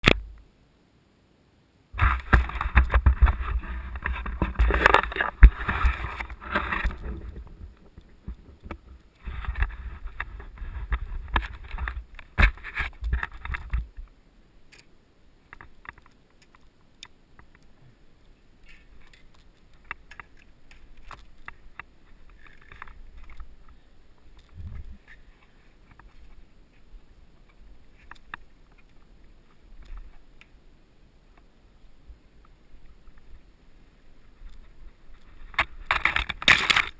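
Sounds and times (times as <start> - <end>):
mountain bike rattling on dirt trail: 2.0 - 14.0, 34.6 - 36.9.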